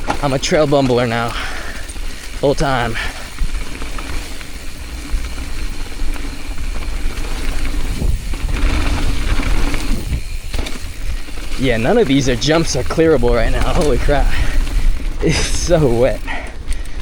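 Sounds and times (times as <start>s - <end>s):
mountain bike rolling on dirt: 0.0s - 17.0s
wind on microphone: 6.6s - 16.8s.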